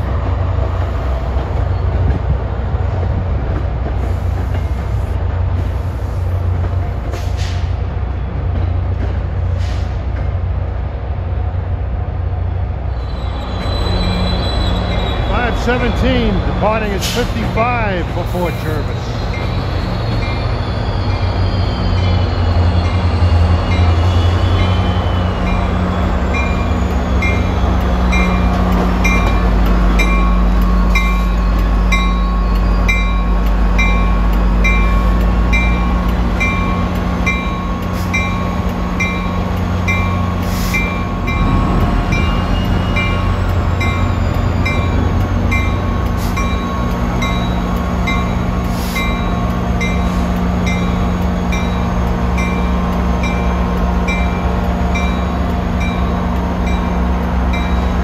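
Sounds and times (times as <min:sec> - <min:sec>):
diesel locomotive engine drone: 0:00.0 - 0:58.0
locomotive bell ringing: 0:13.7 - 0:58.0.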